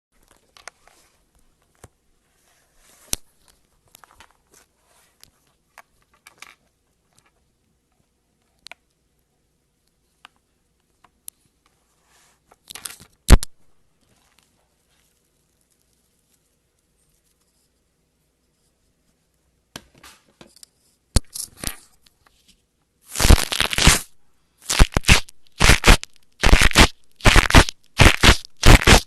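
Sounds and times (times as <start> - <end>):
slime crackling and squishing: 23.1 - 29.0.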